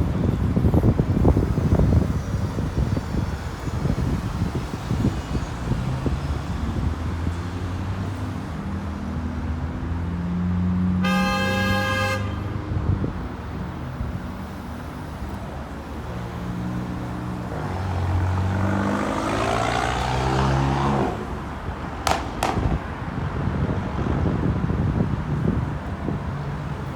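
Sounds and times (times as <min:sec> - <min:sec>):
heavy vehicle engines: 0:00.0 - 0:26.9
road traffic: 0:00.0 - 0:26.9
vehicle horn: 0:10.9 - 0:12.7.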